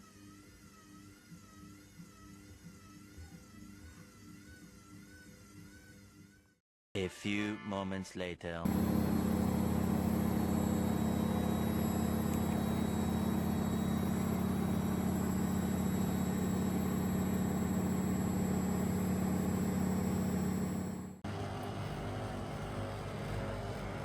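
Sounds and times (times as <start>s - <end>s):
washing machine motor humming: 8.7s - 24.0s.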